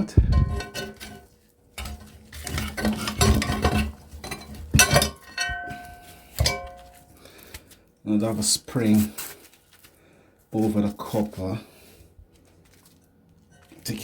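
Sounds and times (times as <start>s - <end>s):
hand tools clinking on metal: 1.8s - 7.0s.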